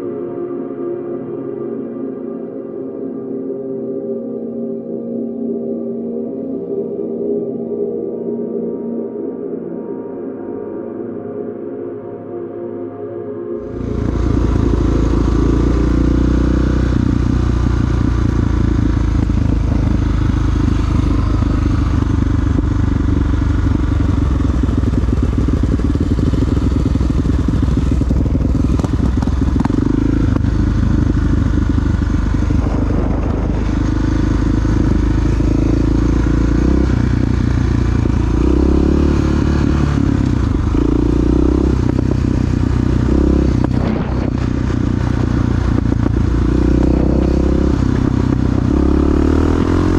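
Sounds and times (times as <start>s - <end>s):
motorcycle engine running: 13.6s - 49.9s.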